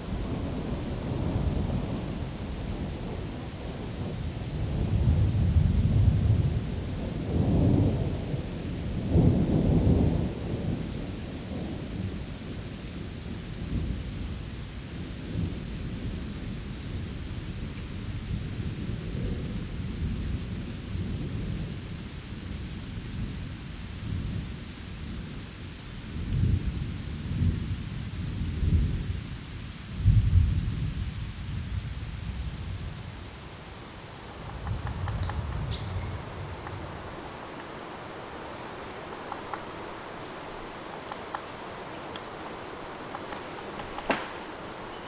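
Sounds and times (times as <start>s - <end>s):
rolling thunder: 0.0s - 12.7s, 30.0s - 45.0s
steady rainfall: 0.0s - 45.0s.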